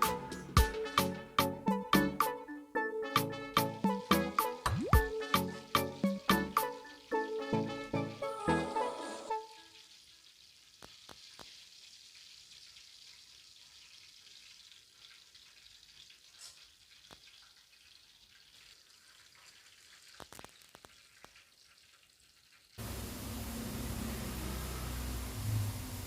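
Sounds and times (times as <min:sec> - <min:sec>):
chicken frying in oil: 0:03.1 - 0:08.0, 0:09.3 - 0:26.0
oil popping: 0:03.8 - 0:07.1.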